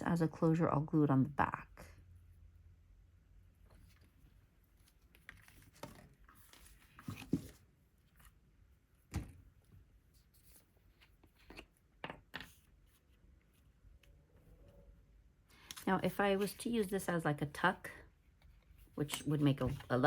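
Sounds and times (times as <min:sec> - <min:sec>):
paper rustling: 0:03.8 - 0:08.4.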